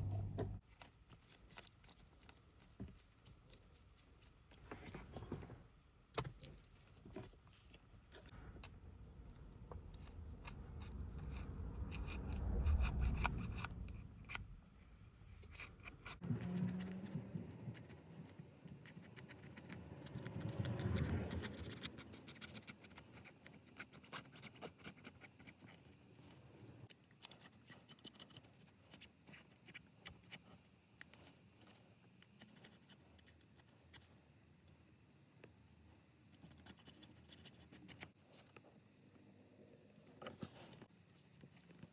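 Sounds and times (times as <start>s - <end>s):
low rumble: 0.0s - 0.6s, 9.0s - 14.8s.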